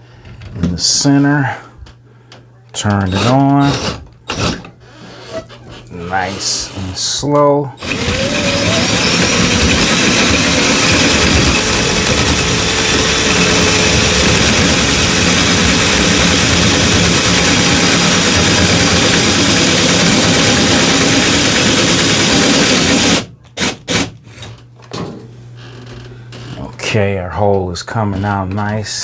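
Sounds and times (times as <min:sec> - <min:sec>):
power drill boring through wood: 0:03.0 - 0:04.7, 0:05.3 - 0:07.1, 0:07.8 - 0:24.1.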